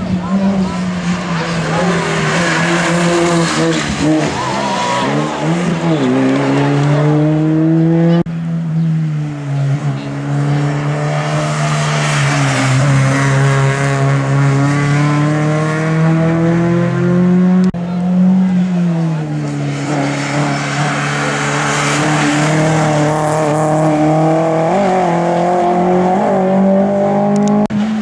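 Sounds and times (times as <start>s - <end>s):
race car engine at high revs: 0.0s - 28.0s.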